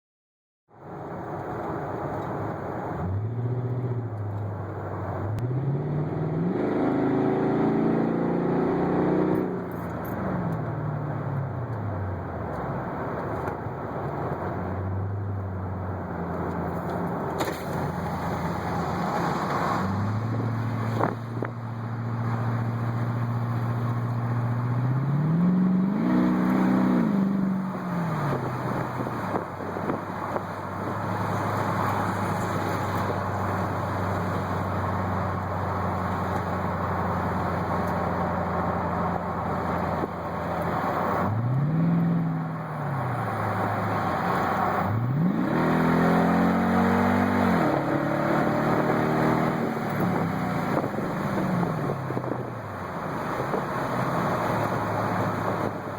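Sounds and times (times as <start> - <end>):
truck engine revving: 37.0 - 52.4.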